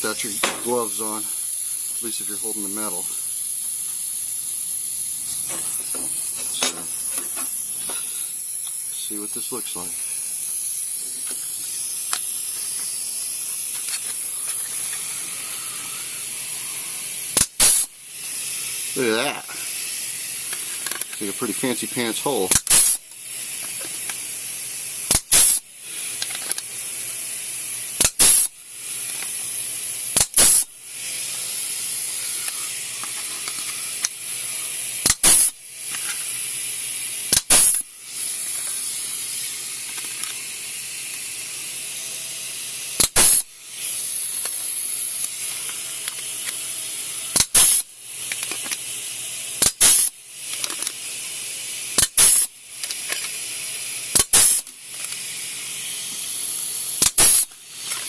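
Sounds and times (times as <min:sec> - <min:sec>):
compressed air hissing: 0:00.0 - 0:58.0
pneumatic punch sharp snaps: 0:00.3 - 0:02.0, 0:03.4 - 0:08.8, 0:10.5 - 0:15.0, 0:17.3 - 0:18.0, 0:22.5 - 0:24.2, 0:25.0 - 0:26.9, 0:28.0 - 0:30.8, 0:31.8 - 0:34.2, 0:35.0 - 0:36.5, 0:37.2 - 0:41.3, 0:42.9 - 0:46.6, 0:47.3 - 0:48.9, 0:49.6 - 0:51.0, 0:51.9 - 0:53.4, 0:54.1 - 0:55.3, 0:56.1 - 0:58.0.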